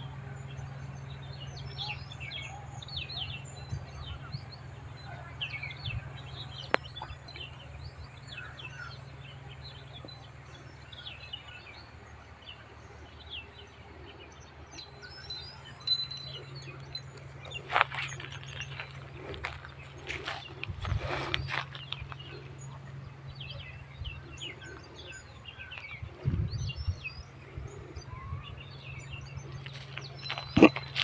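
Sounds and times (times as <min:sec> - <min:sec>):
small birds chirping: 0:00.0 - 0:31.0
steady low rumble: 0:00.0 - 0:31.0.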